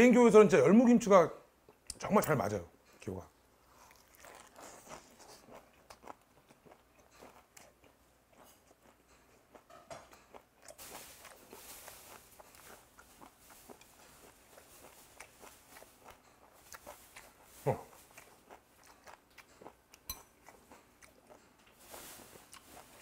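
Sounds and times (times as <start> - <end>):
soft crunchy chewing: 2.8 - 23.0.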